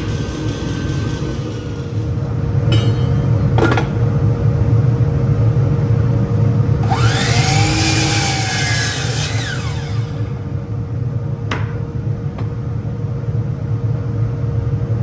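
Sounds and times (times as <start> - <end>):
power tool cutting wood: 0.0 - 2.1, 6.8 - 10.4
power tool motor running: 0.0 - 2.2, 6.8 - 10.4.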